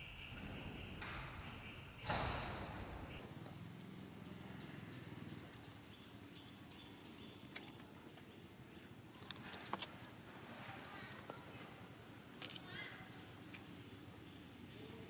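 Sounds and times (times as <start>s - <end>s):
high-pitched insect chorus: 3.2s - 15.0s.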